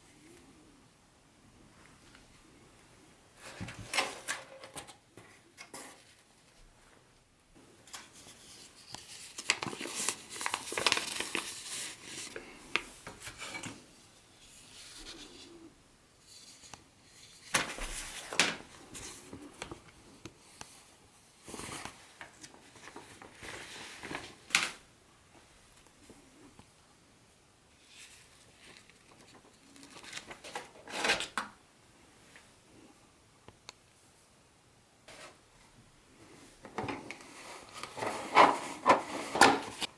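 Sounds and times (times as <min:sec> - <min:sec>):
packaging rubbing and rustling: 0:08.3 - 0:12.4.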